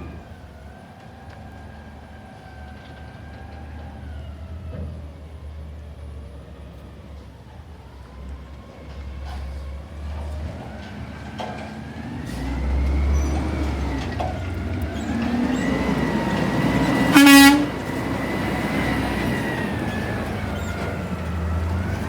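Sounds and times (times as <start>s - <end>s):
emergency siren wailing: 0.0s - 5.2s, 10.4s - 22.0s
vehicle engine rumbling: 8.4s - 22.0s
car horn blast: 17.0s - 17.9s.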